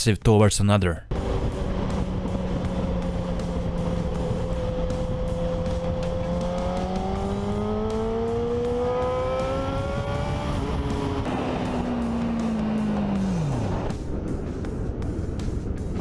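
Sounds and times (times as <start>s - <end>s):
motorcycle engine accelerating: 1.7s - 11.1s.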